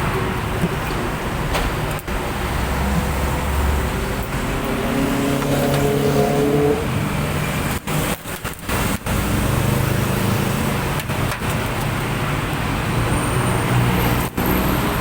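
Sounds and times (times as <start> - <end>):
road traffic rumble: 0.0 - 15.0
vehicle engine passing: 2.3 - 7.2.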